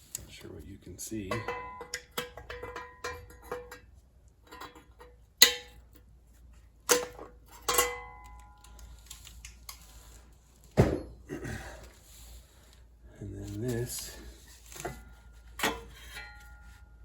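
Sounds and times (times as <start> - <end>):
ringing metal clanks: 1.2 - 6.0, 6.9 - 9.0, 14.7 - 17.0
sheet metal clicks and scrapes: 1.3 - 6.0, 13.7 - 16.7
dull thump: 10.7 - 11.3.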